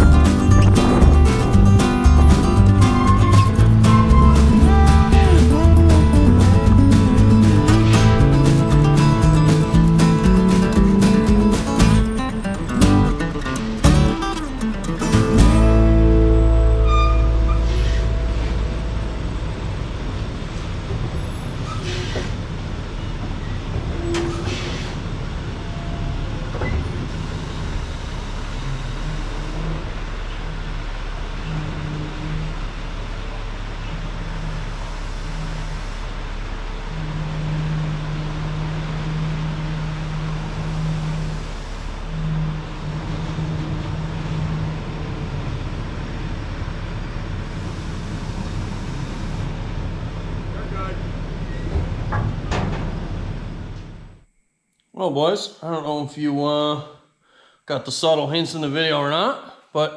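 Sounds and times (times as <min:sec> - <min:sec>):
low hum: 0:00.0 - 0:21.9
heavy vehicle engine rumble: 0:00.0 - 0:54.2.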